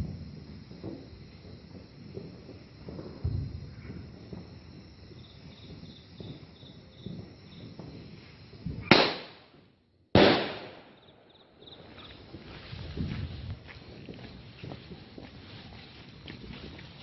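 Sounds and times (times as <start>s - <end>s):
loud firework bangs: 0.0s - 13.1s.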